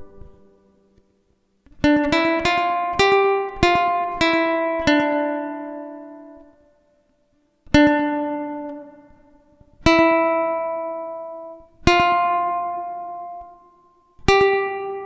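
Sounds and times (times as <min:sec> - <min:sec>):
ukulele chords strummed: 0:00.0 - 0:01.0, 0:01.6 - 0:06.6.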